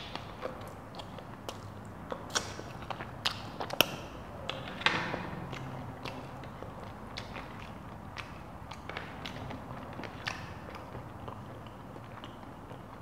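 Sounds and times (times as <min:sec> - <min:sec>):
person chewing with wet clicks: 0:00.0 - 0:13.0.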